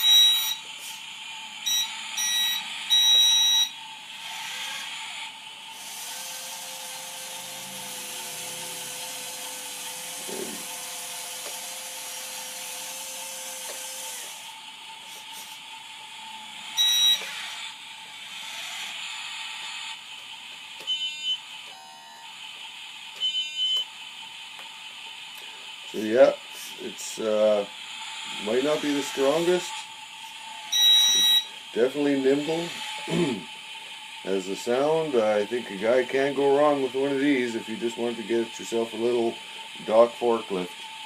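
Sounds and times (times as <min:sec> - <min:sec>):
reversing alarm beeps: 0:00.0 - 0:00.7, 0:01.6 - 0:03.8, 0:16.8 - 0:17.4, 0:20.9 - 0:22.1, 0:23.2 - 0:23.9, 0:30.7 - 0:31.6
motor whine: 0:00.0 - 0:41.0
hiss: 0:00.7 - 0:01.1, 0:15.0 - 0:15.7, 0:25.3 - 0:30.4.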